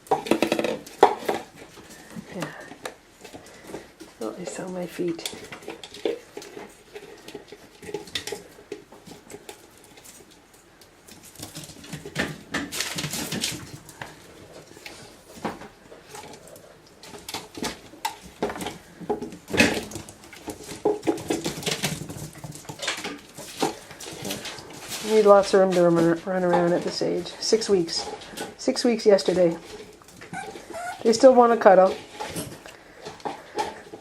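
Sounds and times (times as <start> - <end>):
plastic containers clattering: 0.0 - 10.4, 11.0 - 34.0
puppies making small noises: 12.9 - 34.0.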